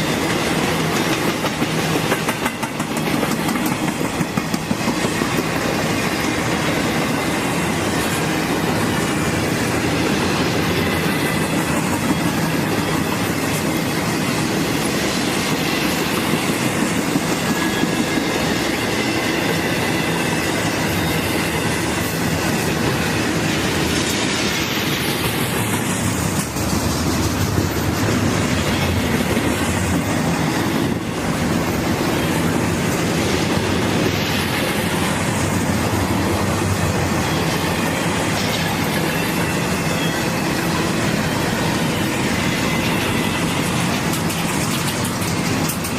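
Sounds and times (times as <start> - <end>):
freight train rolling past: 0.0 - 45.9
wheels clicking over rail joints: 42.7 - 45.9.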